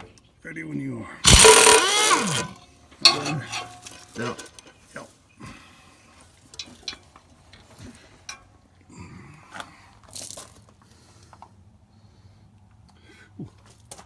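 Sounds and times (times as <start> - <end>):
metal clatter: 1.3 - 4.8.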